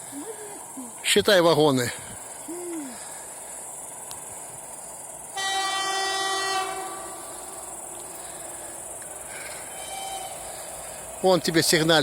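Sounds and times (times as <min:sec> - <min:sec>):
crickets chirring: 0:00.0 - 0:12.0
locomotive horn blast: 0:05.3 - 0:07.7, 0:09.7 - 0:10.6.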